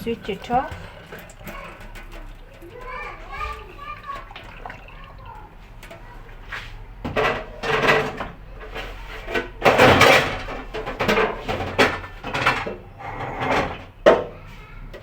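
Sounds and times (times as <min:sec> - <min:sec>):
knocks and scrapes of fridge parts: 0:05.3 - 0:15.0.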